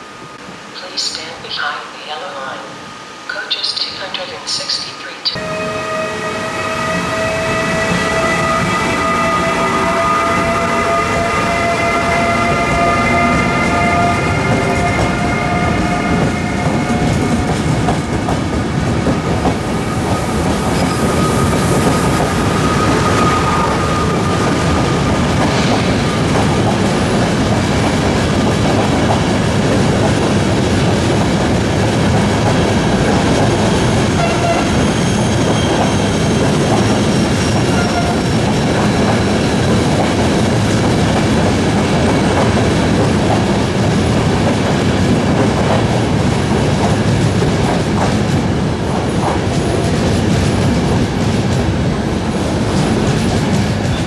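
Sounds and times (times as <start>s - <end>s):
high-pitched wheel squeal: 5.4s - 17.6s, 19.6s - 26.4s, 34.1s - 36.5s
train wheels rumbling over rail joints: 6.6s - 54.0s.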